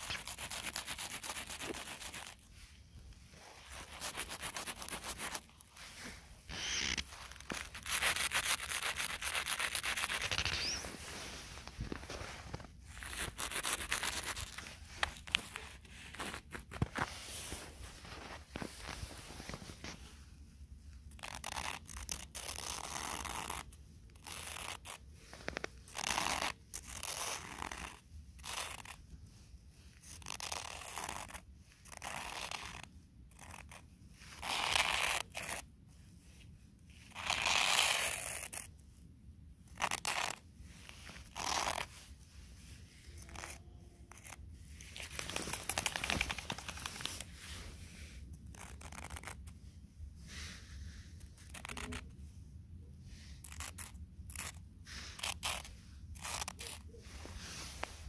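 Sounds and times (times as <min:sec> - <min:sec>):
footsteps crunching in snow: 0:10.1 - 0:13.2.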